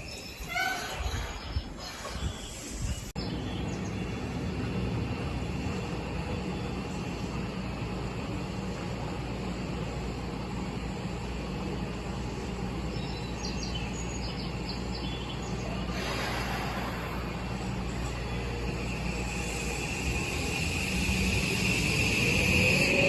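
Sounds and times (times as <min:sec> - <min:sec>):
station background noise: 0:01.5 - 0:23.0
electric train inverter whine: 0:02.4 - 0:23.0.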